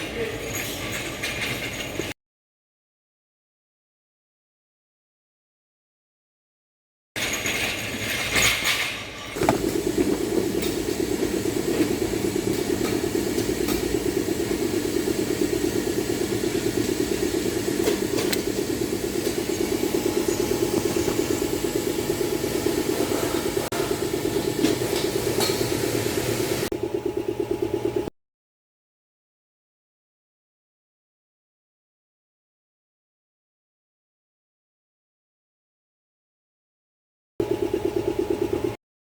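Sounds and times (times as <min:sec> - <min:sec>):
car engine idling: 0:09.4 - 0:24.5.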